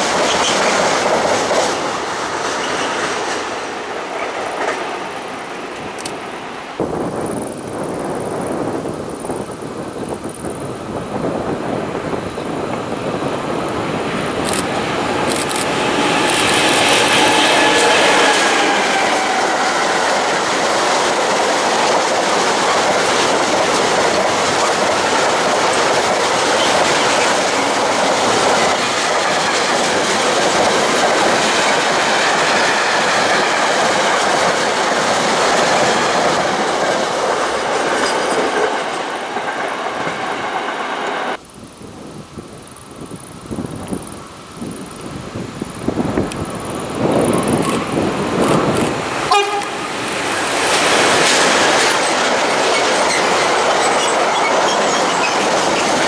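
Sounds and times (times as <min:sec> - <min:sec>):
train wheels clickety-clack: 0:00.0 - 0:05.1, 0:12.6 - 0:41.4, 0:45.9 - 0:56.0
electric locomotive whine: 0:00.0 - 0:56.0.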